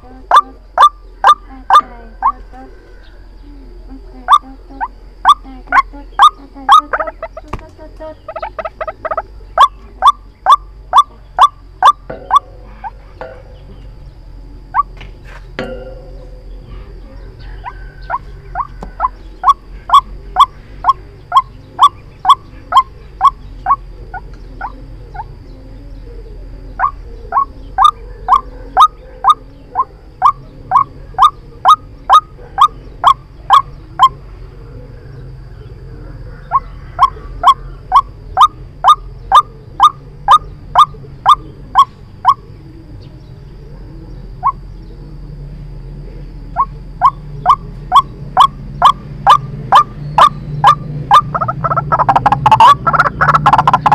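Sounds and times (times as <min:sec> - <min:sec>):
waterhen calling: 0:00.0 - 0:13.7, 0:17.4 - 0:25.3, 0:26.8 - 0:34.2, 0:36.5 - 0:42.4, 0:46.6 - 0:53.9
low steady hum: 0:00.0 - 0:53.9.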